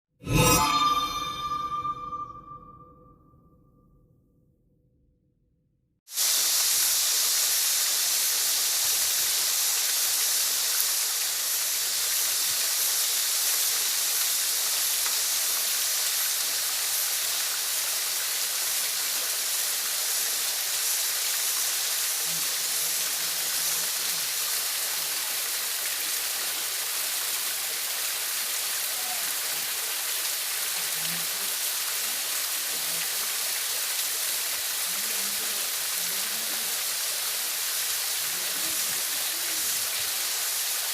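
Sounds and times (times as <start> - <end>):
waterfall rushing: 33.6 - 40.9.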